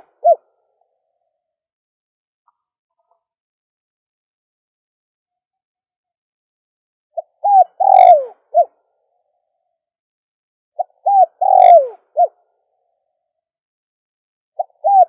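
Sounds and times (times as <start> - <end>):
dove cooing: 0.0 - 0.4, 7.2 - 8.7, 10.8 - 12.4, 14.6 - 15.0.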